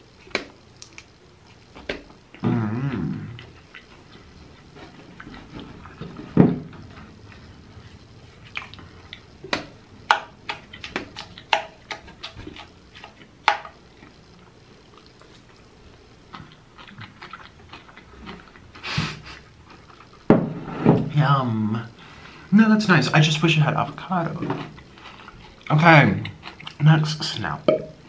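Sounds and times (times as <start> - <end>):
chewing with wet mouth clicks: 0.3 - 1.1, 3.4 - 4.3, 8.4 - 14.2, 14.9 - 18.8, 24.6 - 26.8.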